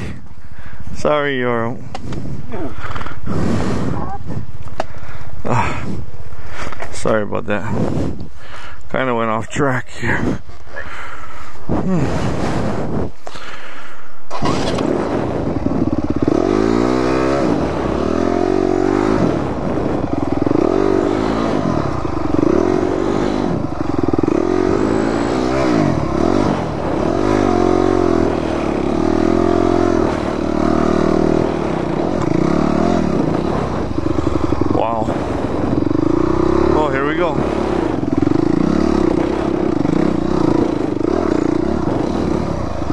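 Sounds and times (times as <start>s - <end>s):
dirt bike engine revving: 14.3s - 42.9s.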